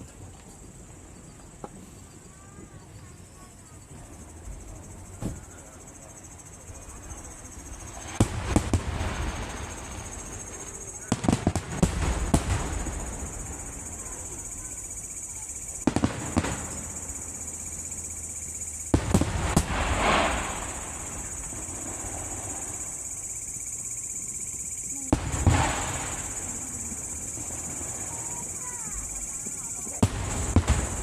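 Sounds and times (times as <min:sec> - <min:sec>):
fireworks bangs: 0:06.7 - 0:18.0, 0:18.7 - 0:23.5, 0:24.9 - 0:31.0
fireworks crackle: 0:06.7 - 0:31.0.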